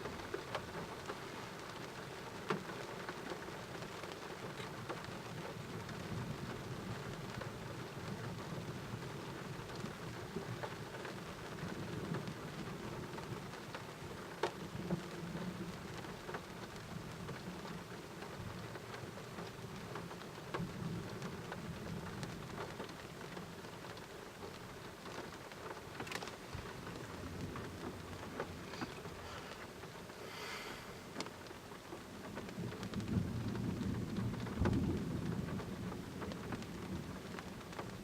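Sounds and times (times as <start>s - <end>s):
rain falling: 0.0s - 38.0s
thunder rumbling: 31.9s - 38.0s.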